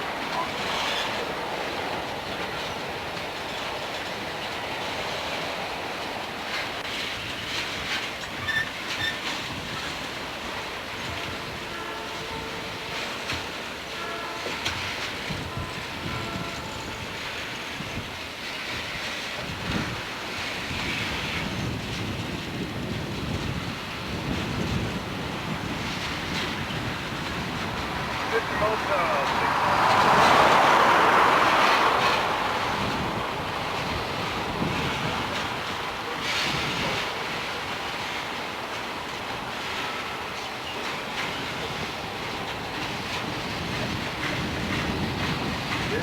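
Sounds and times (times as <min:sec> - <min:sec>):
freight train cars rolling on rails: 0:00.0 - 0:46.0
wind buffeting microphone: 0:14.6 - 0:46.0.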